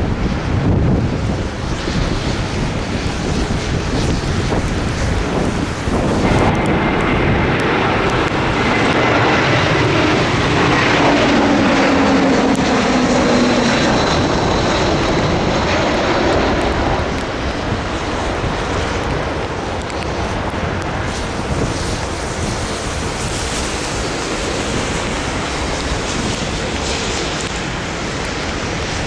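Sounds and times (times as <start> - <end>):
jet airliner passing: 0.0 - 29.0
wind buffeting microphone: 0.0 - 29.0.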